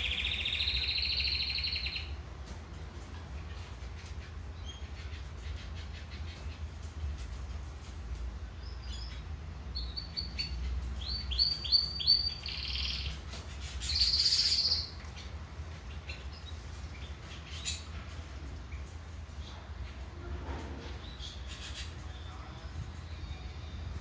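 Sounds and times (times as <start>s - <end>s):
canary singing: 0.0s - 2.2s, 8.6s - 19.9s.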